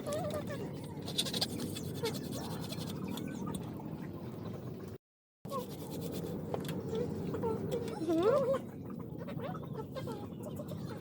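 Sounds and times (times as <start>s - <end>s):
faint small squeaks: 0.0s - 3.5s.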